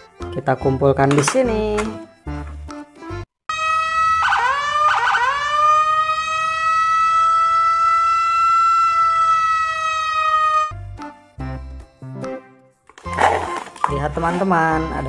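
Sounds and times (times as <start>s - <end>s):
police siren wailing: 3.5s - 10.8s.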